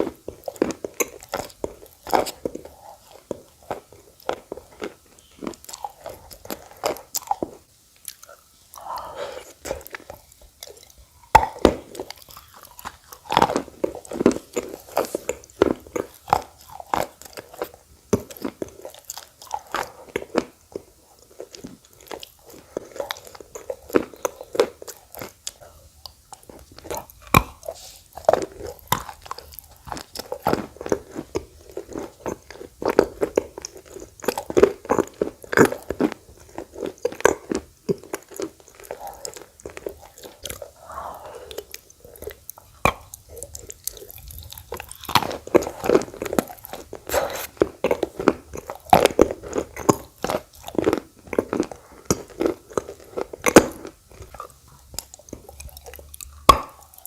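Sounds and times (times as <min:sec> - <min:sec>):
person crunching and chewing clay: 0:00.0 - 0:57.0.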